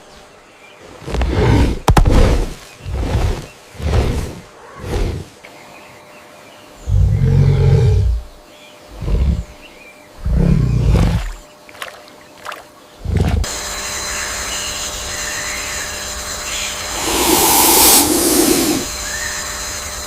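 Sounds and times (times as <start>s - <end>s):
rainforest hiss: 0.0s - 20.0s
low animal growls: 2.8s - 5.4s, 6.8s - 11.4s, 13.0s - 13.5s, 16.9s - 18.9s
high insect tones: 13.8s - 20.0s.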